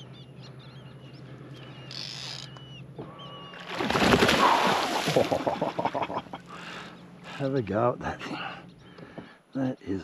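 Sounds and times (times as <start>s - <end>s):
birds whistling: 0.0s - 4.8s, 8.3s - 10.0s
low steady hum: 0.0s - 10.0s.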